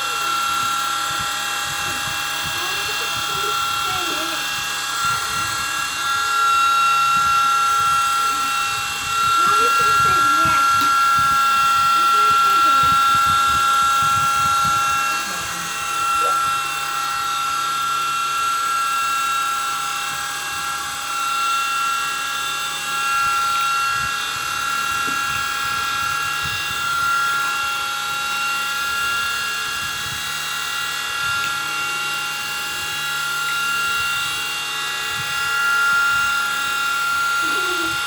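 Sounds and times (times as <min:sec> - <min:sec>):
small helicopter motor whine: 0:00.0 - 0:38.0.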